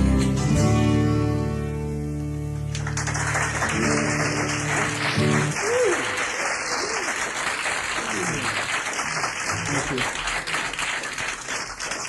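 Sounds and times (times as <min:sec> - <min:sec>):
audience applause: 0:02.7 - 0:12.0.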